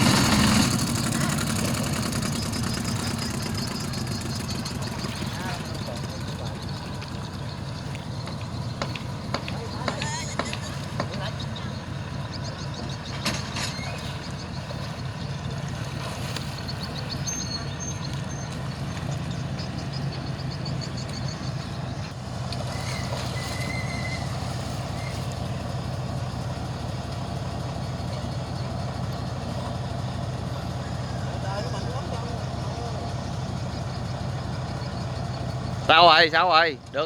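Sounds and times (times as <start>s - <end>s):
boat engine humming: 0.0s - 37.0s
brief high squeals: 22.7s - 25.3s.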